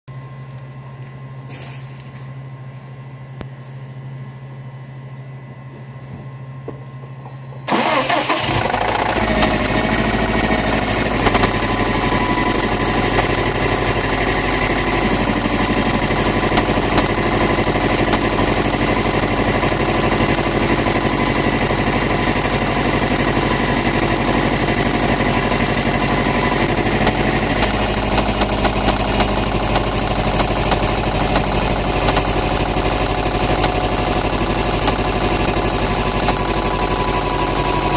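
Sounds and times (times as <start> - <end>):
car engine starting and idling: 7.7 - 37.9
fast knocking inside engine: 8.4 - 37.9.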